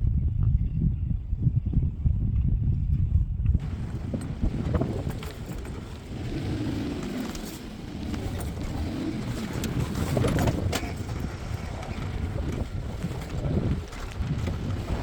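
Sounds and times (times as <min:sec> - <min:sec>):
off-road vehicle engine running: 0:03.5 - 0:15.0.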